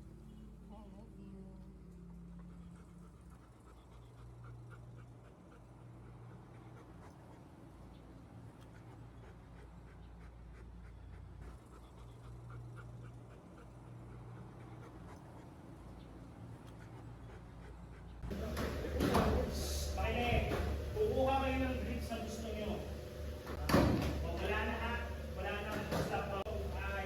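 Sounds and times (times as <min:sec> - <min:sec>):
dog panting faintly: 0:00.0 - 0:27.0
low hum: 0:18.2 - 0:27.0.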